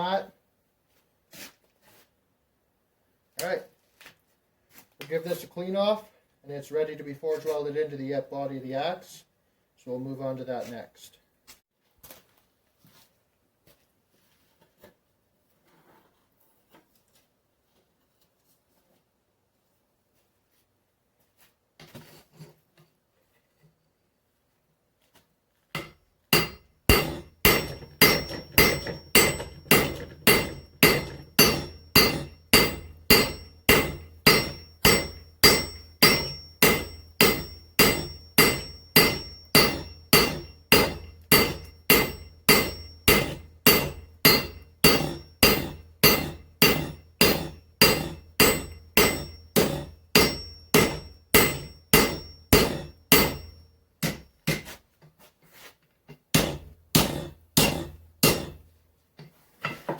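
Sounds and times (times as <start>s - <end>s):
hammer striking hot steel on anvil: 25.8s - 54.7s, 56.4s - 58.7s.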